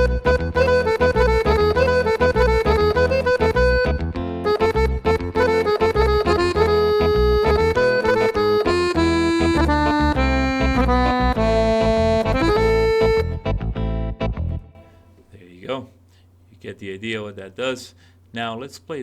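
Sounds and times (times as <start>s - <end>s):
pulsing low bass: 0.0s - 14.8s
accordion melody on keyboard: 0.0s - 15.0s.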